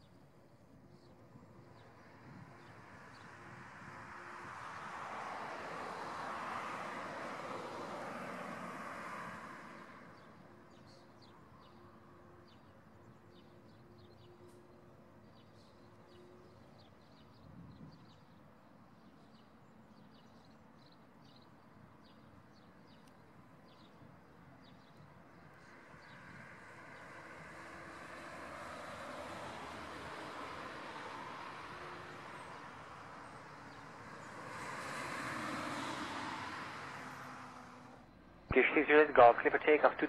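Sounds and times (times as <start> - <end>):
jet airliner noise: 38.5 - 40.0.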